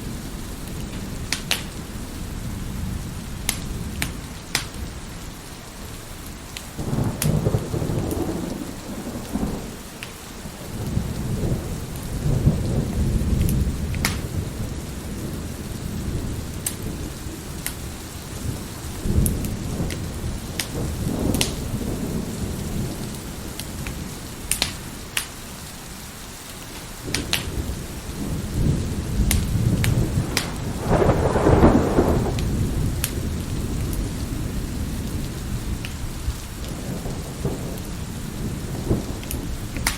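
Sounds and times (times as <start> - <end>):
steady rain: 0.0 - 39.9
wood fire crackling and popping: 0.7 - 1.8, 3.5 - 4.8, 13.4 - 14.3, 17.6 - 17.8, 19.2 - 21.6, 23.6 - 25.4, 26.5 - 27.5, 29.2 - 34.0, 39.2 - 39.9
thunder rolling: 6.8 - 9.9, 10.5 - 17.6, 27.1 - 39.9.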